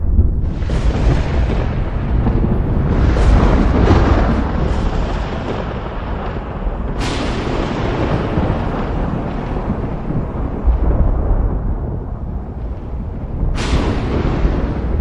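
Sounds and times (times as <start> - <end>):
thunder cracks: 0.0 - 15.0
thunder rumbling: 0.0 - 15.0.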